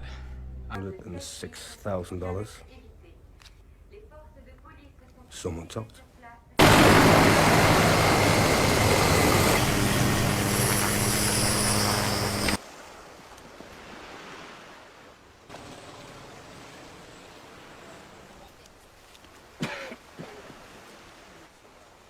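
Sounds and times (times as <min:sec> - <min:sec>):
engine rumble with rushing hiss: 0:06.6 - 0:12.6.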